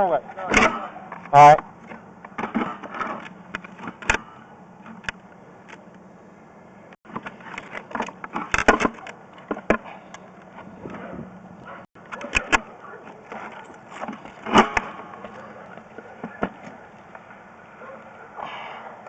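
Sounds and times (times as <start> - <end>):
equipment clicking and rattling: 11.8 - 16.8.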